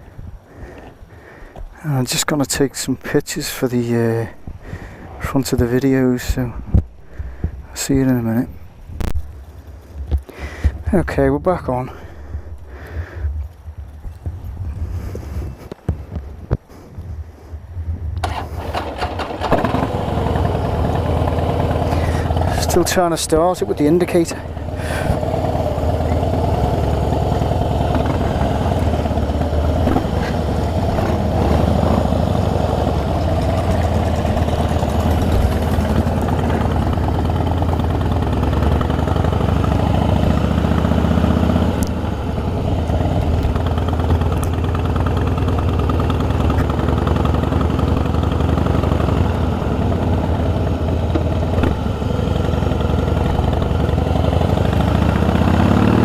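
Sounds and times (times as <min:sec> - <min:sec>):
motorcycle engine rumbling: 0:18.0 - 0:56.0.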